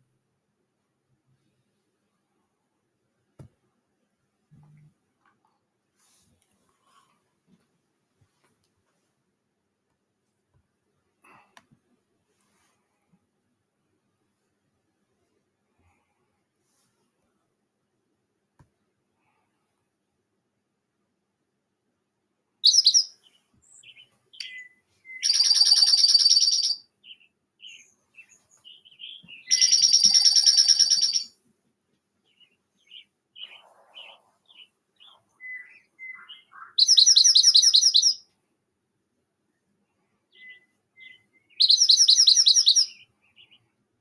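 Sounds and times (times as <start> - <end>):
songbird trilled song: 22.6 - 31.3, 32.3 - 38.2, 40.3 - 43.6
soft chip-like bird notes: 23.8 - 26.7.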